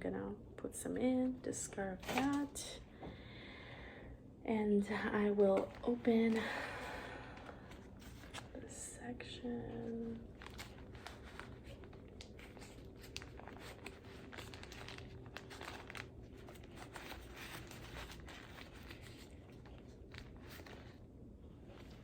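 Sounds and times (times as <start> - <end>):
plastic packaging crinkling: 9.8 - 22.0.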